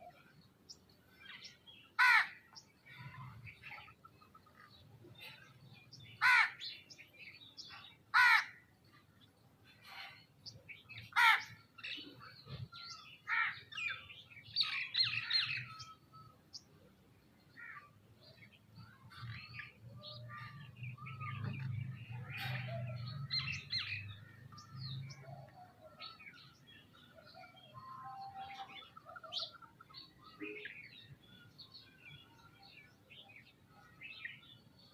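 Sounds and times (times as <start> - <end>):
harsh caw-like bird calls: 2.0 - 2.5, 6.1 - 6.8, 8.1 - 8.6, 11.0 - 11.6, 13.2 - 13.8
birds chirping and whistling: 9.6 - 16.8, 18.2 - 34.9.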